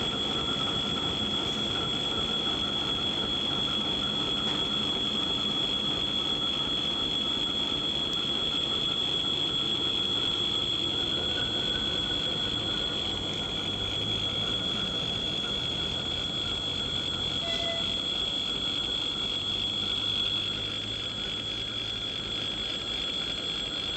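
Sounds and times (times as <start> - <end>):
high-pitched whine: 0.0 - 23.9.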